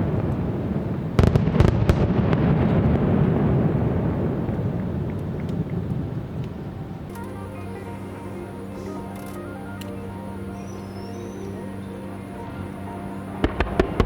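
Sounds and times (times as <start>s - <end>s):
aerial fireworks bursting: 0.0s - 5.9s, 13.3s - 14.0s.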